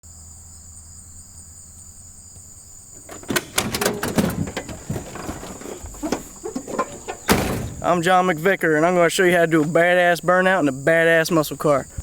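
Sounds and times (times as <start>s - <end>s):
loud knocks and clunks: 3.0s - 8.3s.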